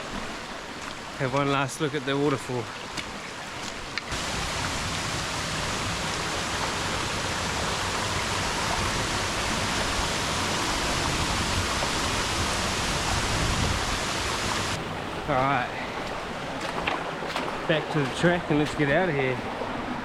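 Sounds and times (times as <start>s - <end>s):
waterfall rushing: 4.1s - 15.0s.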